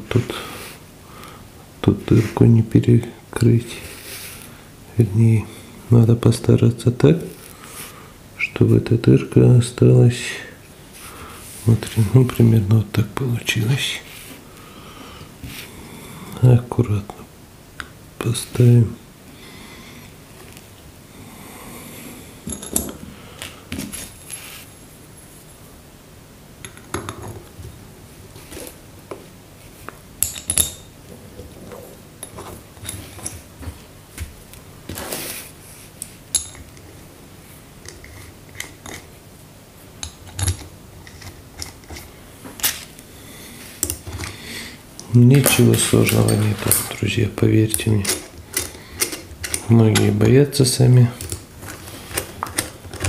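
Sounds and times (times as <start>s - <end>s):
metal tools clinking and scraping: 22.5s - 23.0s, 30.2s - 33.5s, 36.3s - 36.8s, 45.3s - 50.3s.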